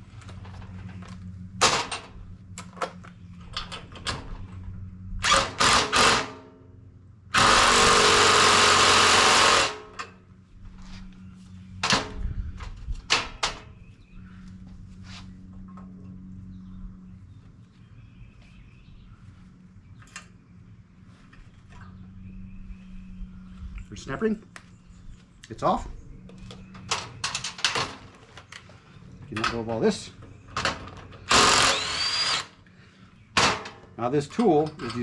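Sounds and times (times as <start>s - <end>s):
power tool running: 5.2s - 6.4s, 7.3s - 10.0s, 31.2s - 32.6s
metal tools clanking: 33.6s - 35.0s.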